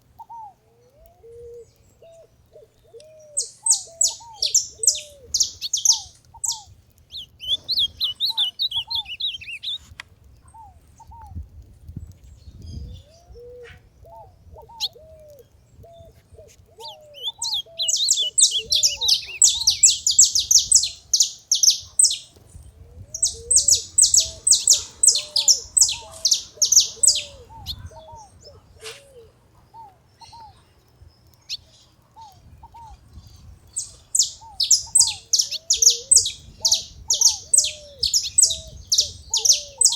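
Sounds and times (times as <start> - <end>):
lower bird call: 0.2 - 9.9, 12.6 - 22.4, 23.0 - 30.7, 31.4 - 39.9
finches chirping: 3.0 - 9.8, 16.8 - 22.5, 23.1 - 29.2, 29.8 - 39.9.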